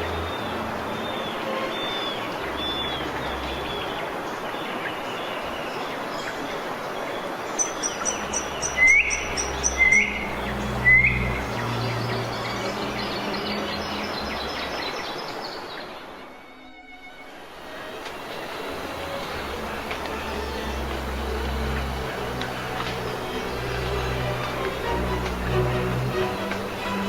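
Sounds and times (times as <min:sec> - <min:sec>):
bird calls: 0:00.0 - 0:16.4
steady background hiss: 0:00.0 - 0:27.0.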